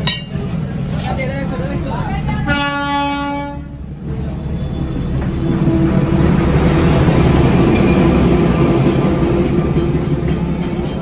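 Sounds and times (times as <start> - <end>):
train rumbling past: 0.0 - 11.0.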